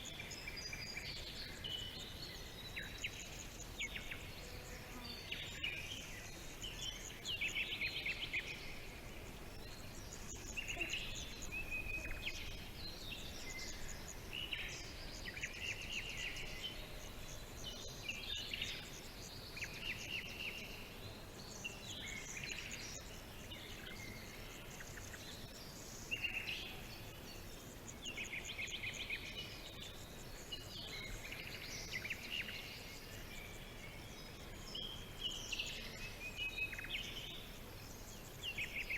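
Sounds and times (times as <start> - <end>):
faint background hiss: 0.0 - 38.9
birds chirping: 0.3 - 38.9.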